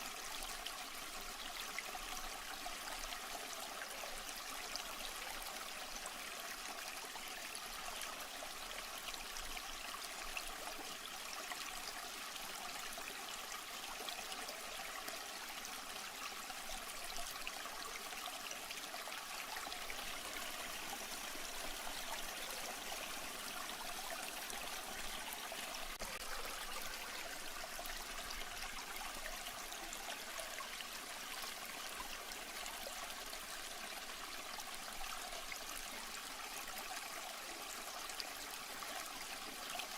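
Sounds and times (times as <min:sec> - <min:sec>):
running water trickling: 0:18.7 - 0:35.9.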